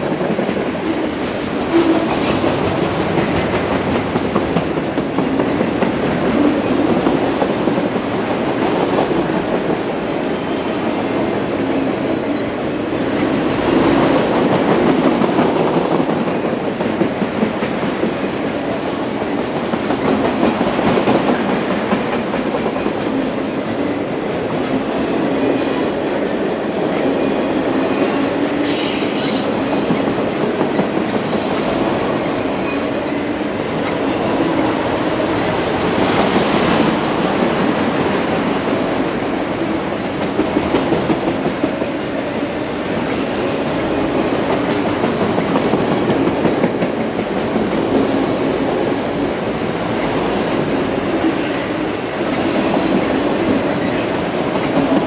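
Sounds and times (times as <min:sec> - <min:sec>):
train wheels rolling on rail: 0:00.0 - 0:55.0
brief high hiss: 0:28.6 - 0:29.5.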